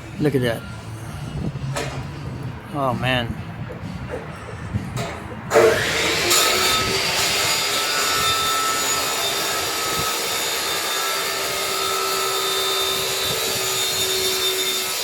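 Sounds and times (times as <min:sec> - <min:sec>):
power tool whining: 0:05.4 - 0:15.0.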